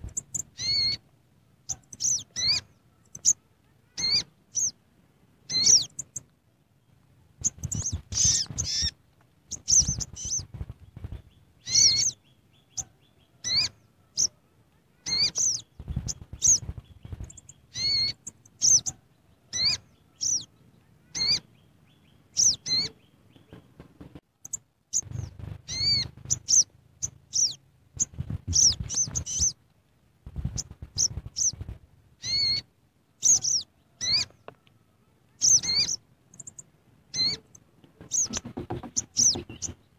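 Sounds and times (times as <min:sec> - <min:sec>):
low thuds or rustling: 0:25.0 - 0:26.5.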